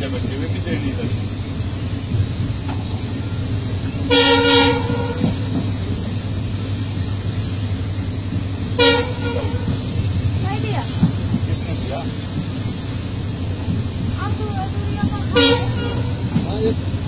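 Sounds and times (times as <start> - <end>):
moving train coach rumble: 0.0 - 17.0
train horn blast: 4.0 - 5.5, 8.7 - 9.9, 15.3 - 16.4.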